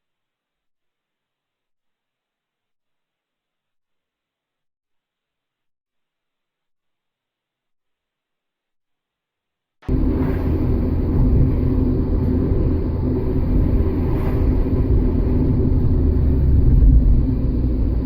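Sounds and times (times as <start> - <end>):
car engine and road noise: 9.8 - 18.0
faint steady hum: 9.8 - 18.0.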